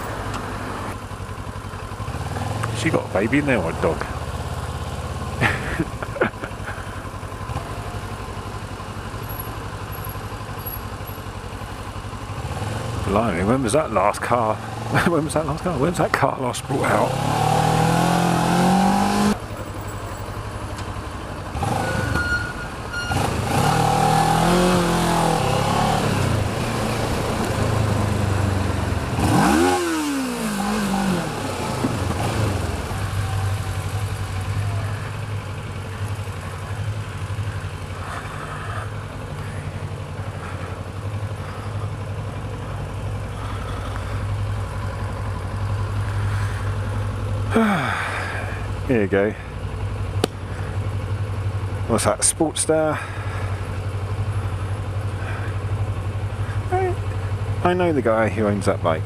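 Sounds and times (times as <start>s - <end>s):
motorcycle engine idling and revving: 0.0s - 59.0s.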